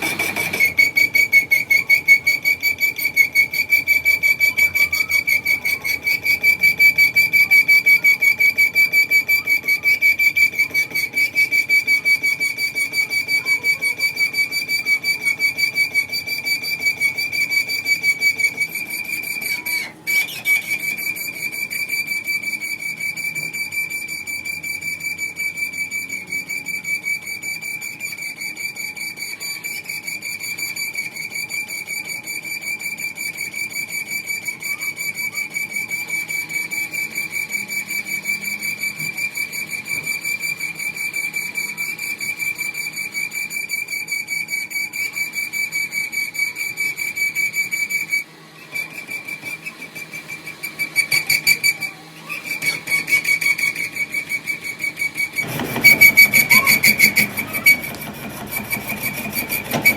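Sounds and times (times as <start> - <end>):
loud rasping scrape: 0.0 - 8.4, 47.6 - 59.9
metal machining squeal: 0.0 - 59.9.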